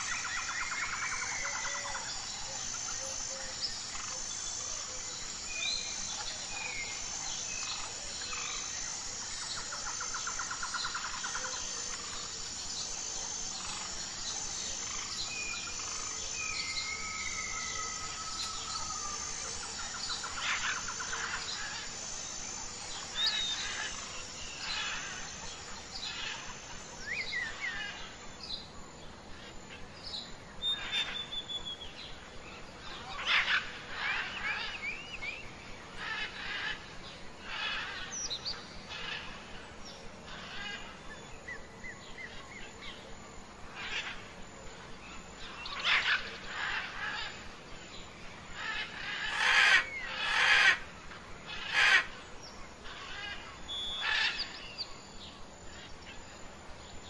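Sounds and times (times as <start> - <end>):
birds chirping and whistling: 0.0 - 21.9, 30.6 - 32.0
high insect trill: 0.0 - 57.0.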